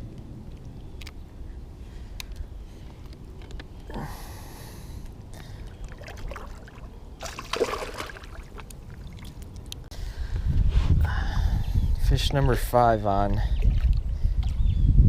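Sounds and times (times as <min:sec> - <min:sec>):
water sloshing and trickling: 0:05.4 - 0:09.9, 0:12.3 - 0:14.7
water splashes: 0:05.6 - 0:09.7.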